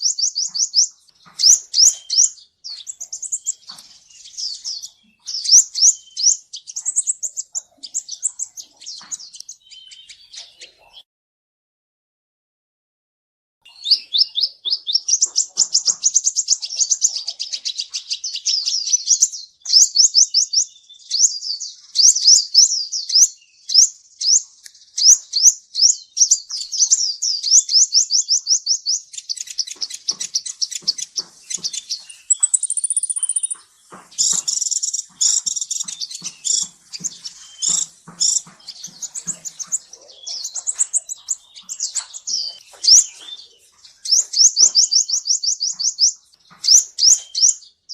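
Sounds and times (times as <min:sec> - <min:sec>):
bird twittering trills: 0:00.0 - 0:11.0, 0:13.7 - 0:47.9
harsh bird chattering: 0:00.0 - 0:11.0, 0:13.7 - 0:20.5, 0:26.2 - 0:47.6
thin high bird whistle: 0:32.2 - 0:33.6.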